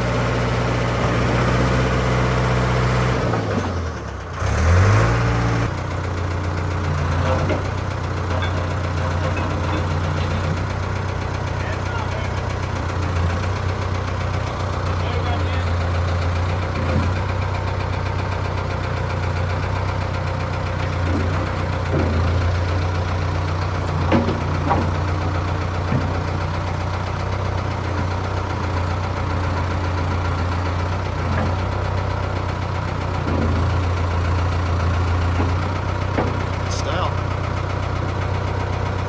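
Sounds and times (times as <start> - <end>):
diesel engine idling: 0.0 - 39.0
light clanks and knocks: 7.2 - 10.8, 20.8 - 22.6, 23.7 - 26.5, 33.2 - 36.7.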